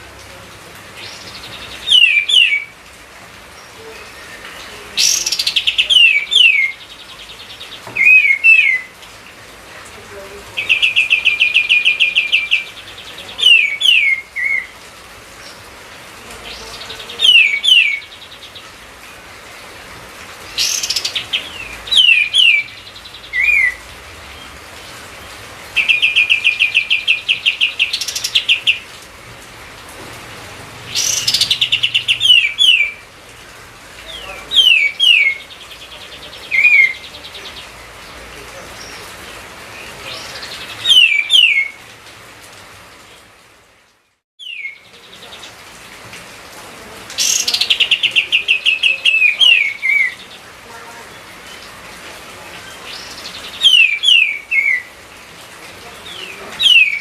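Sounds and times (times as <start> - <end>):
songbird singing trills and whistles: 1.0 - 2.8, 3.6 - 9.0, 10.6 - 14.8, 16.4 - 18.7, 20.5 - 23.8, 25.8 - 28.9, 30.9 - 33.0, 34.1 - 37.8, 39.8 - 41.8, 44.4 - 45.4, 47.2 - 50.4, 52.6 - 54.9, 56.1 - 57.0.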